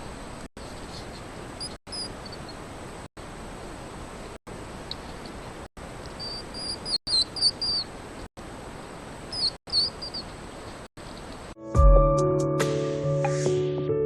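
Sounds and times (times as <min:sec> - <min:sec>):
high animal chirps: 0:01.6 - 0:02.6, 0:06.1 - 0:07.9, 0:09.3 - 0:10.3.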